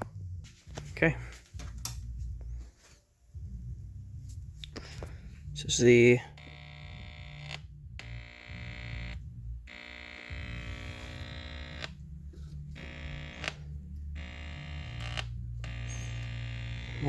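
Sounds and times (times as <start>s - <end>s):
tube tv electrical buzz: 5.8s - 17.0s.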